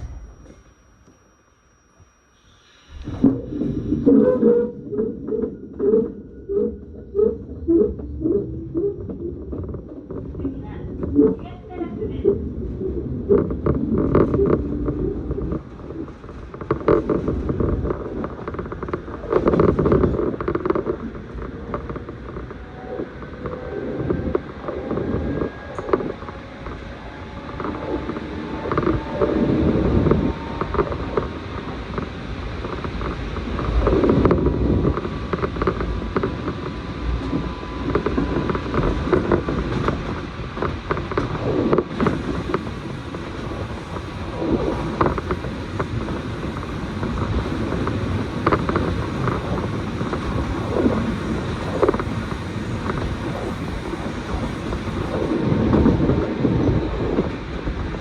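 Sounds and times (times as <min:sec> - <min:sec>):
train wheels rumbling on rail: 0:00.0 - 0:01.2, 0:02.9 - 0:58.0
train car clicks knocks and creaks: 0:13.4 - 0:26.8, 0:27.4 - 0:57.4.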